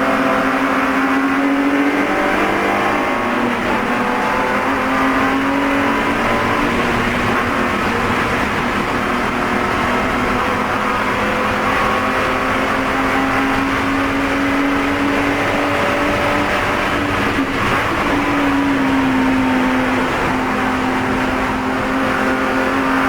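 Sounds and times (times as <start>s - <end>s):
race car engine under load: 0.0s - 23.0s.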